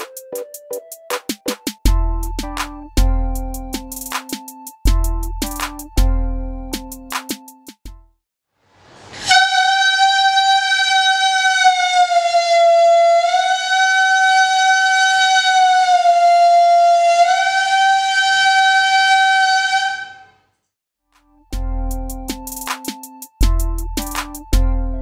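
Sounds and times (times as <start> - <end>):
balloon membrane horn buzzing: 9.1 - 20.4.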